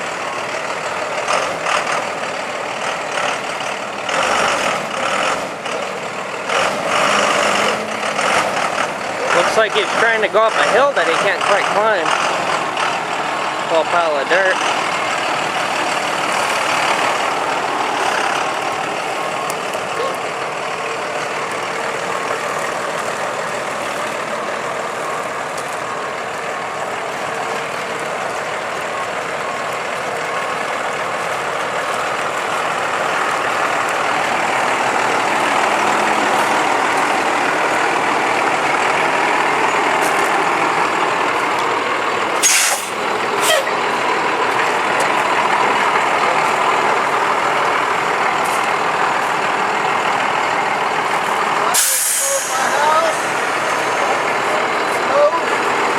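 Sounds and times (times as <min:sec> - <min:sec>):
diesel truck engine running: 0:00.0 - 0:55.9
air brake hisses: 0:42.4 - 0:43.7, 0:51.7 - 0:52.9.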